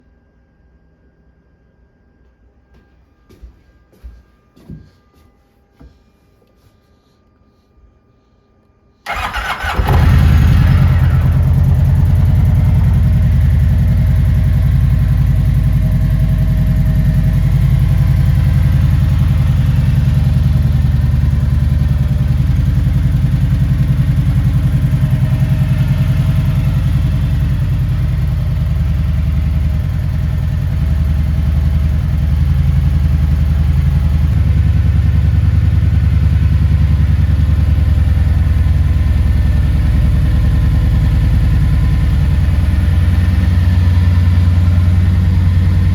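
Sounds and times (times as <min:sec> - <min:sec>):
motorcycle engine idling: 0:09.1 - 0:45.9.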